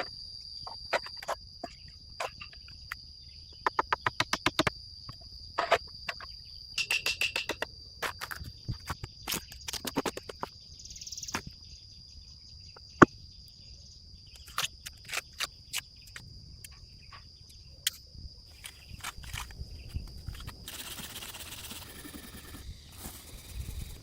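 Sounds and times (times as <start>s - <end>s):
cricket trill: 0.0s - 24.0s
sharp clicks and knocks: 3.6s - 4.7s, 5.6s - 10.5s.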